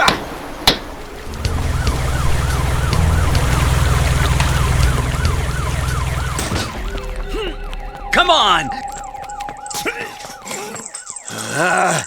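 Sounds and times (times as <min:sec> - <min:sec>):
low engine rumble: 0:01.1 - 0:09.7
siren rising and falling quickly: 0:01.2 - 0:11.8.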